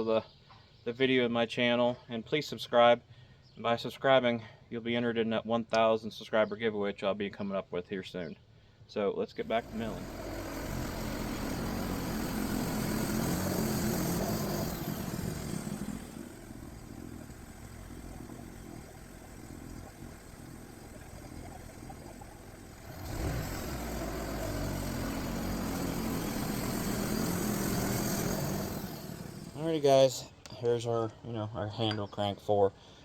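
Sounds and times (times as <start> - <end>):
bandsaw sawmill engine sawing log: 9.4 - 30.0.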